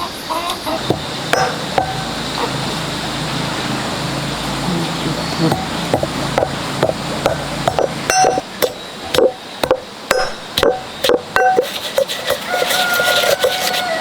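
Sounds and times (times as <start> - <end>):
kitchen pounding or chopping: 0.9 - 2.1, 5.5 - 13.8.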